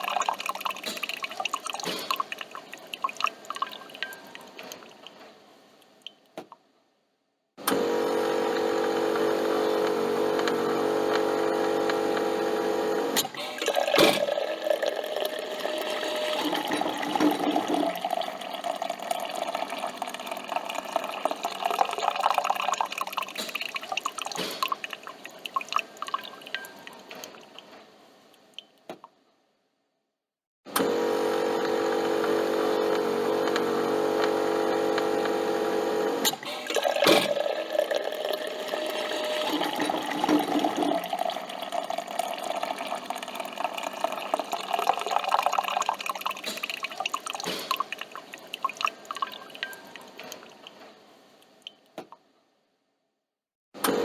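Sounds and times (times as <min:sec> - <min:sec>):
coffee pouring and dripping: 0:00.0 - 0:05.2, 0:08.0 - 0:27.7, 0:31.1 - 0:51.9
coffee machine humming: 0:07.6 - 0:23.3, 0:30.7 - 0:47.4, 0:53.8 - 0:54.0.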